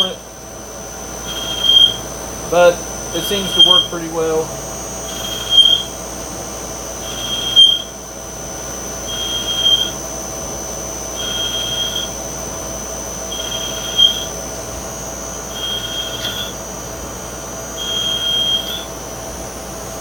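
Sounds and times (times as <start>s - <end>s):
machine high whine: 0.0s - 20.0s
cutting tool squealing: 1.2s - 4.0s, 5.0s - 6.0s, 7.0s - 8.0s, 9.0s - 10.1s, 11.0s - 12.4s, 13.2s - 14.4s, 15.4s - 16.8s, 17.7s - 19.0s.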